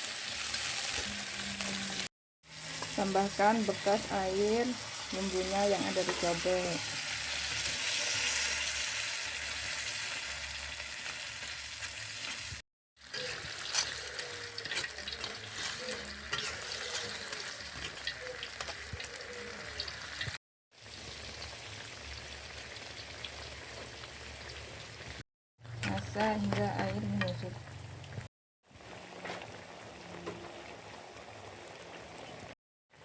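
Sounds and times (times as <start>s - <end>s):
paste sizzling in a pan: 0.0s - 18.2s
spatula clicking and scraping: 13.1s - 19.2s.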